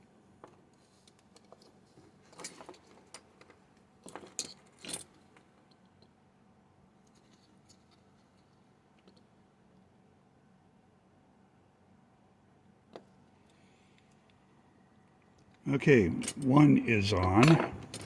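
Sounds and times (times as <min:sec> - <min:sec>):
tools and plastic parts clicking: 0:17.4 - 0:18.0.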